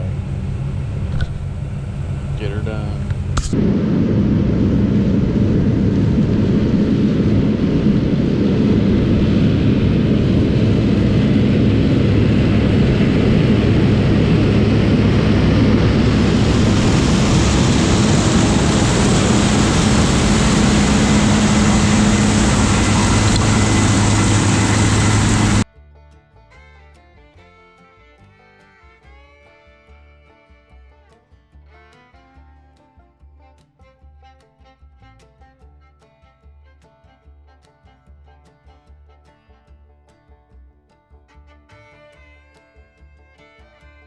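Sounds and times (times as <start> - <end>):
diesel engine running under load: 0.0 - 25.6
rushing hissing noise: 2.8 - 25.6.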